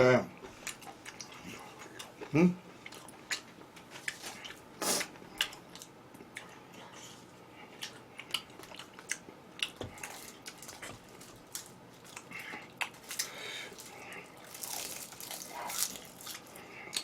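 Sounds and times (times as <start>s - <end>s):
chewing crunches: 7.7s - 17.0s.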